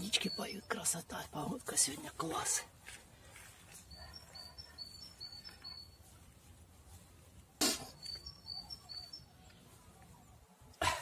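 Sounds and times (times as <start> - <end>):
bird singing faintly: 0.0 - 1.9, 3.7 - 6.4, 7.4 - 10.7.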